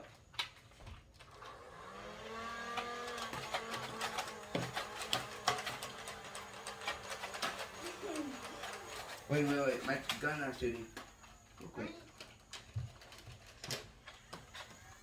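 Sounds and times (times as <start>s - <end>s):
electric motor whirring: 1.3s - 11.1s.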